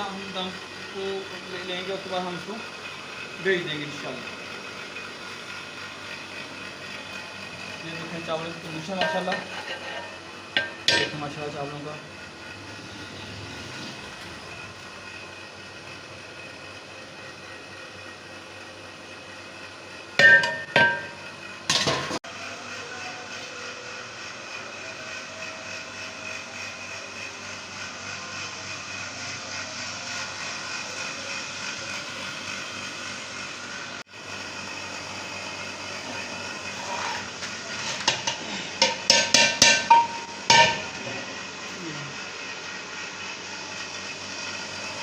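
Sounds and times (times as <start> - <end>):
metal strikes on cooking pot: 20.2 - 21.9, 38.0 - 40.9.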